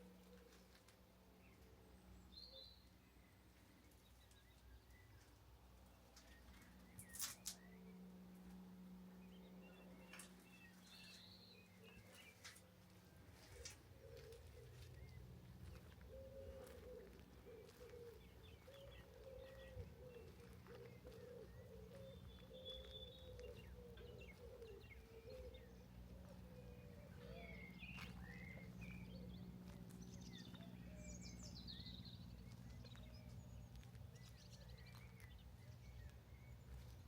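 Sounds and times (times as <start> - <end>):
low hum: 0.0 - 37.0
small birds chirping: 0.0 - 37.0
pigeon cooing: 13.4 - 28.1.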